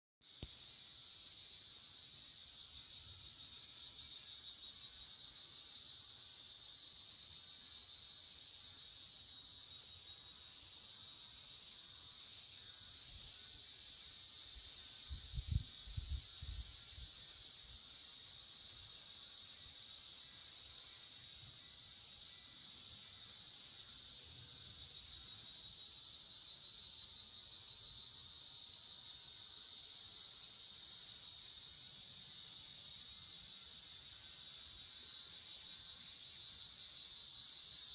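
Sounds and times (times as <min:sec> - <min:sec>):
insects buzzing: 0:00.2 - 0:37.9.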